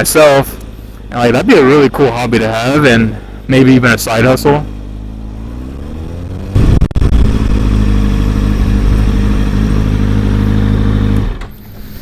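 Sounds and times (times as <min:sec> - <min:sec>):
motorcycle engine running: 0:04.4 - 0:11.4.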